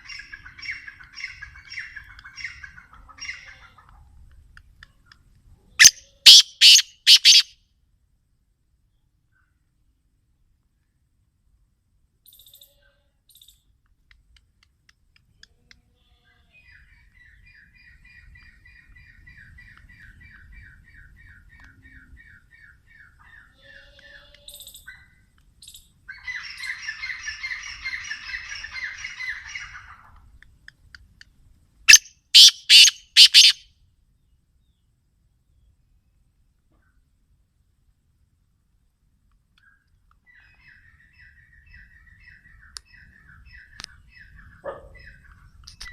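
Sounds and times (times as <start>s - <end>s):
bird harsh grating calls: 5.8s - 7.5s, 31.9s - 33.6s
birds harsh chatter: 5.8s - 7.5s, 31.9s - 33.6s.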